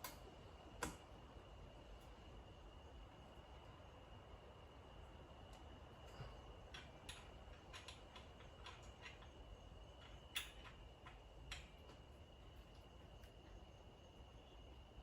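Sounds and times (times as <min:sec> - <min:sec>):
clicks and taps of tools: 0:00.0 - 0:00.2, 0:00.8 - 0:01.0.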